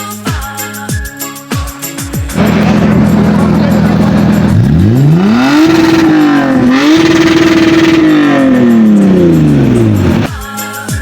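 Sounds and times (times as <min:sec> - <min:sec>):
car engine revving: 0:02.4 - 0:10.3.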